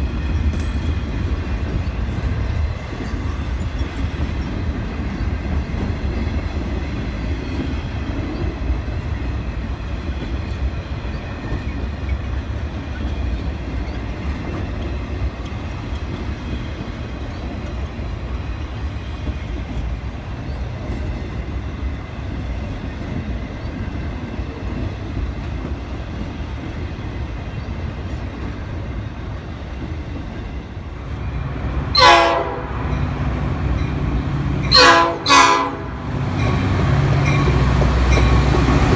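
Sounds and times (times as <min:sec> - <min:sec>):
train rumbling past: 0:00.0 - 0:38.9
train horn blast: 0:31.9 - 0:33.4, 0:34.6 - 0:36.3.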